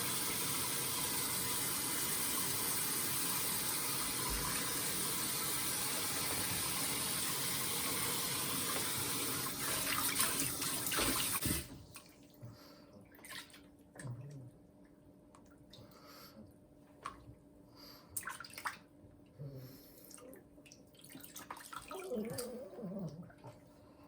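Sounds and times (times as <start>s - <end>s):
water running: 0.0s - 12.2s
small splashes and drips: 13.0s - 14.4s, 18.2s - 18.9s, 20.1s - 22.6s.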